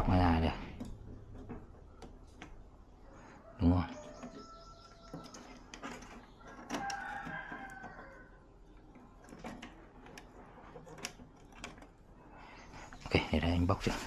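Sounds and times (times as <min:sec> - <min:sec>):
rooster crowing: 0:03.1 - 0:05.4, 0:06.4 - 0:08.4.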